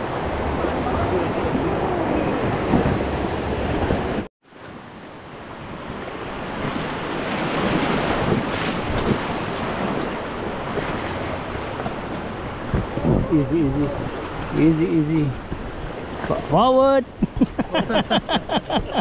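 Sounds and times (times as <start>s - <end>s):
rushing whitewater: 0.0s - 18.2s
wind buffeting microphone: 5.7s - 16.5s.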